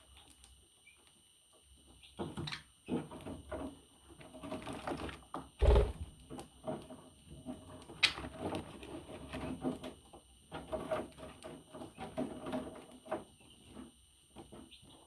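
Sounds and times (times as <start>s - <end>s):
bird pecking and scratching: 2.9s - 14.6s.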